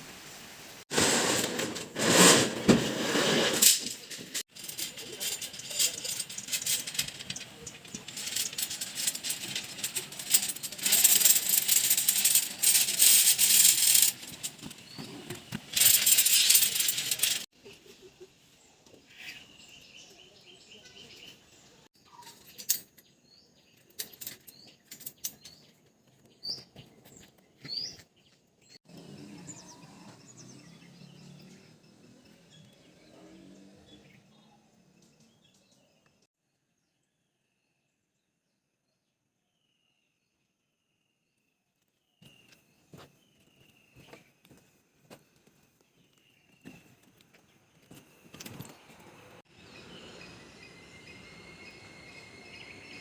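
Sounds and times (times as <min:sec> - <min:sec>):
loud hissy noise with clatter: 0:00.0 - 0:05.8
small birds chirping: 0:04.6 - 0:38.2, 0:38.8 - 0:53.0.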